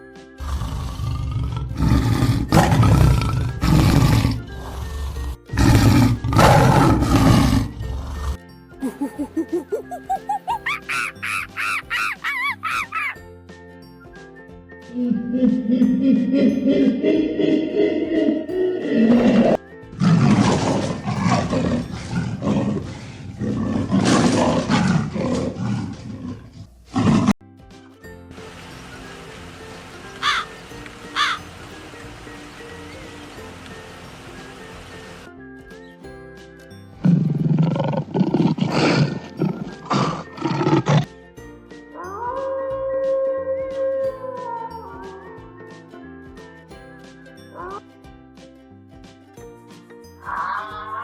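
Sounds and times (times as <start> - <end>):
background music: 0.0 - 51.0
large animal roaring: 0.4 - 8.4, 16.3 - 27.4, 37.1 - 41.1.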